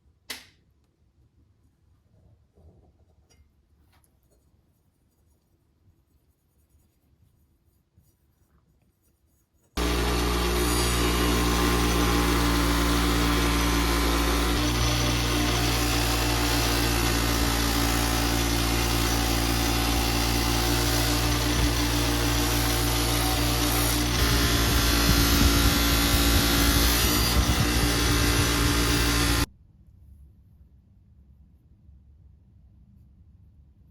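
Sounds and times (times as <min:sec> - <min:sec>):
power tool motor running: 0:09.8 - 0:29.5.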